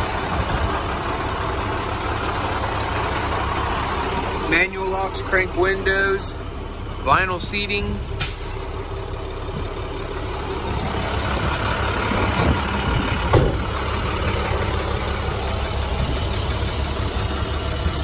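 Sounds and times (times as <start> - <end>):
diesel truck engine idling: 0.0 - 18.0.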